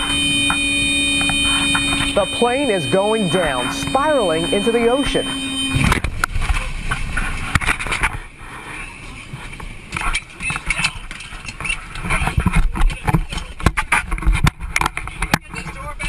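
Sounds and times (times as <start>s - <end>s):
indistinct voices: 1.6s - 5.9s.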